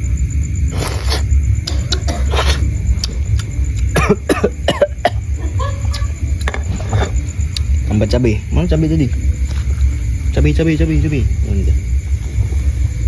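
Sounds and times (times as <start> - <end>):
stove burner rumble: 1.3 - 13.0
cough-like voice sound: 1.7 - 2.7, 3.9 - 6.1.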